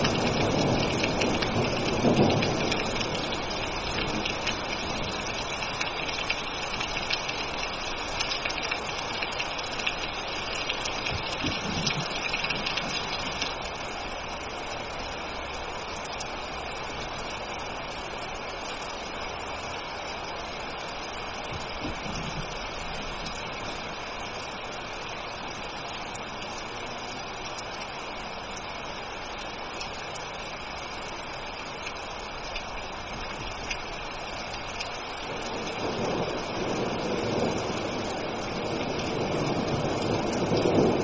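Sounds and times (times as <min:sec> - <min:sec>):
low thunder rumble: 0:00.0 - 0:08.2, 0:10.3 - 0:13.8, 0:21.4 - 0:24.0, 0:35.2 - 0:41.0
steady rain hiss: 0:00.0 - 0:41.0.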